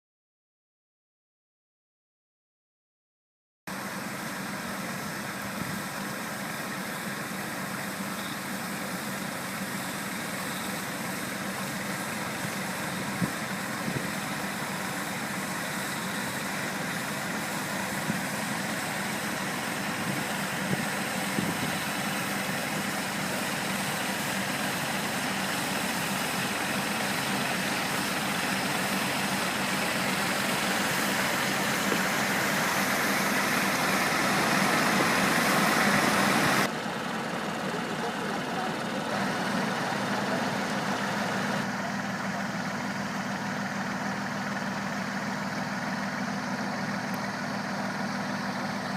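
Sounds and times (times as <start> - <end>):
tractor engine running: 3.7 - 48.9.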